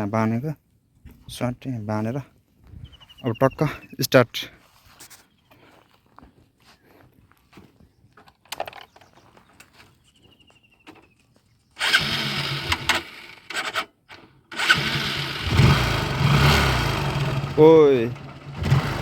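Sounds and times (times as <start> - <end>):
motorcycle engine starting and running: 11.8 - 19.0.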